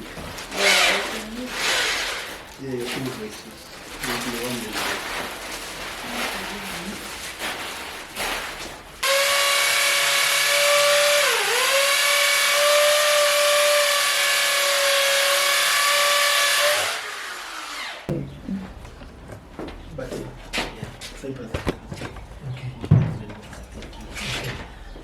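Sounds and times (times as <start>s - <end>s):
electric drill whining: 0.5s - 2.3s, 9.0s - 18.1s.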